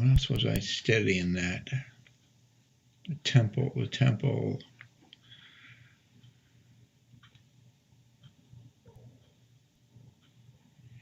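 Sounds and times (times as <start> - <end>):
faint ticks: 0.2 - 0.6.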